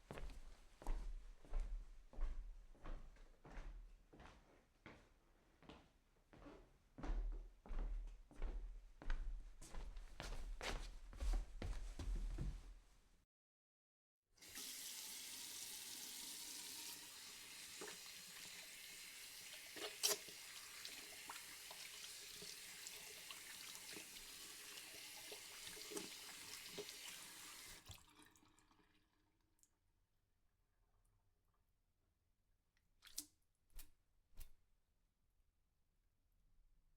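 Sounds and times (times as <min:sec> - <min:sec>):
tap water running into sink: 0:14.4 - 0:29.1
water drips and splashes: 0:19.4 - 0:29.1, 0:33.0 - 0:33.3.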